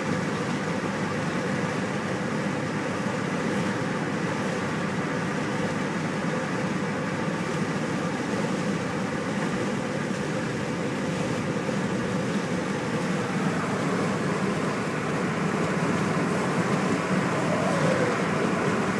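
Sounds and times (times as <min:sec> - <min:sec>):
car road noise: 0:12.6 - 0:18.9.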